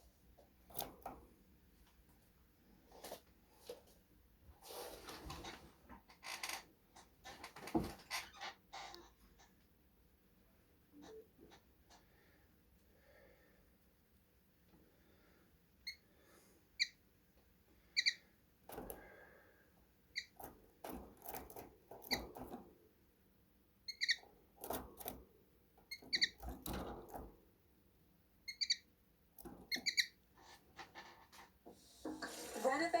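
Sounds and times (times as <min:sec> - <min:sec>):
rustling and scuffling: 0:02.8 - 0:05.9
finches chirping: 0:18.0 - 0:18.2, 0:23.9 - 0:24.2, 0:28.5 - 0:28.9.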